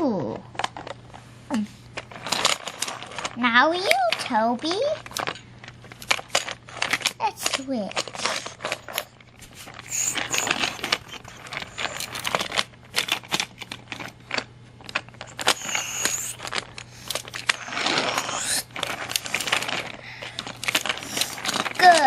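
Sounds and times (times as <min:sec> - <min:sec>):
toy train cars clicking together: 0:02.2 - 0:05.4, 0:06.0 - 0:22.0
toy train scraping on track: 0:15.3 - 0:16.4, 0:17.4 - 0:19.7.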